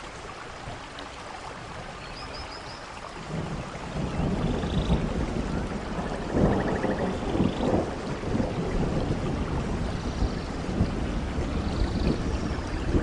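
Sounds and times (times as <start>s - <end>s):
steady rain: 0.0s - 13.0s
rolling thunder: 3.2s - 13.0s.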